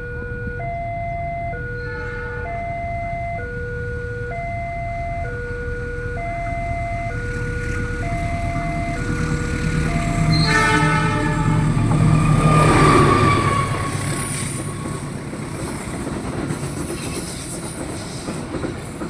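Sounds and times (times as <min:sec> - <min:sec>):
level crossing two-tone alarm: 0:00.0 - 0:07.3, 0:08.0 - 0:11.1
low rumble: 0:02.8 - 0:15.6.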